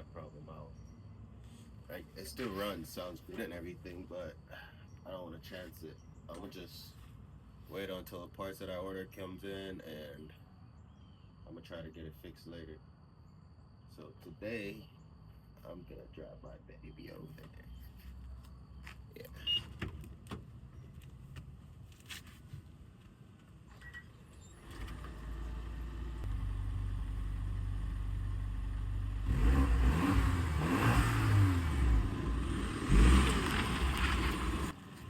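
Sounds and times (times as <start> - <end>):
car engine revving: 24.6 - 34.8.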